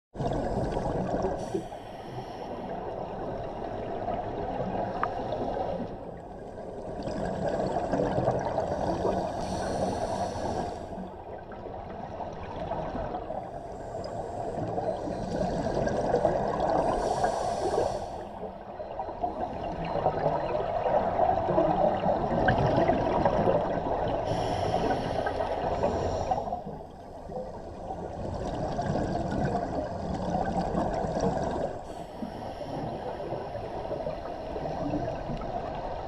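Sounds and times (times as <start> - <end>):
exhaled bubbles gurgling: 0.2 - 36.0
regulator inhale hiss: 1.4 - 2.8, 8.9 - 11.0, 16.8 - 18.5, 24.2 - 26.8, 31.8 - 34.6.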